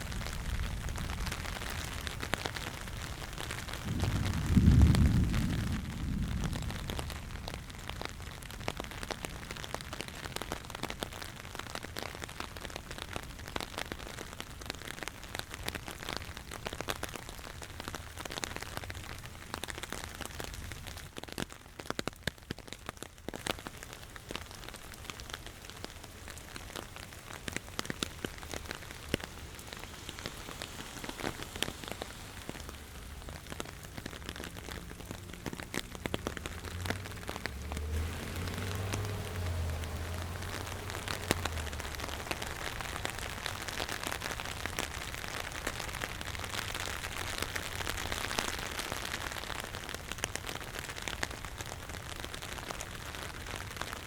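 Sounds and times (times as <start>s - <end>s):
rain pattering: 0.0s - 54.0s
low rumble: 3.8s - 7.7s.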